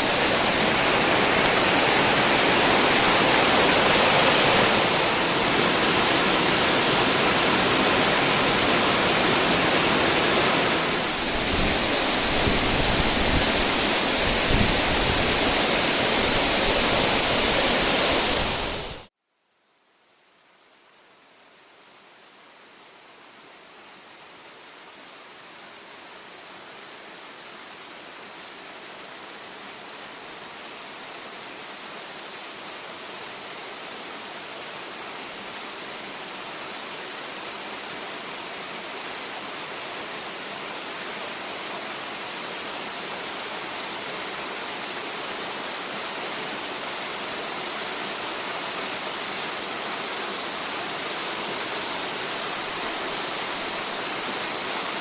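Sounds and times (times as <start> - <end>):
waterfall rushing: 0.0 - 19.1, 32.6 - 55.0.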